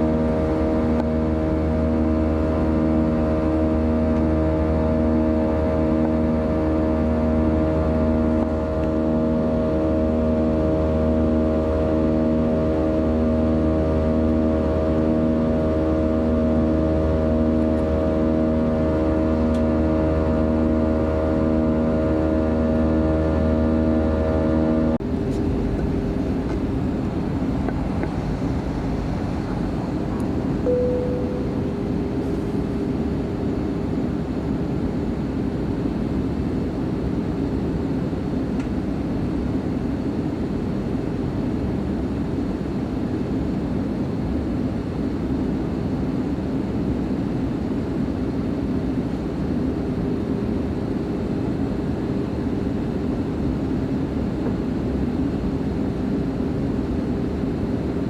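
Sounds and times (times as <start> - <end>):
airplane cabin engine drone: 0.0 - 58.0
short single tone: 30.6 - 32.6.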